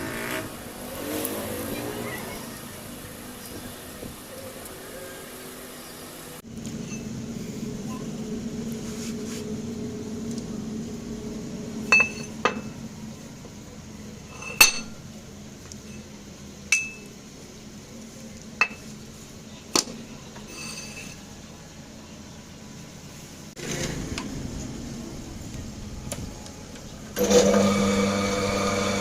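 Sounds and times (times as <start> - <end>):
steady low hum: 0.0 - 27.2
metal tools clinking on metal: 11.9 - 12.8, 14.3 - 15.0, 16.7 - 17.1, 20.4 - 21.3.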